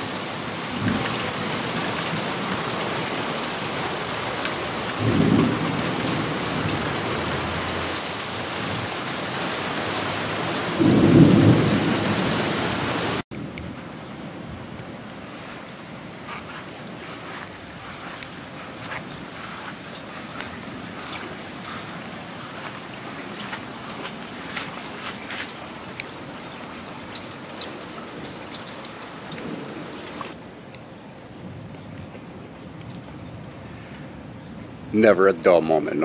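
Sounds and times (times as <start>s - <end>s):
heavy rain pouring: 0.0s - 36.0s
thunder rumbling: 5.0s - 7.5s, 10.8s - 12.6s.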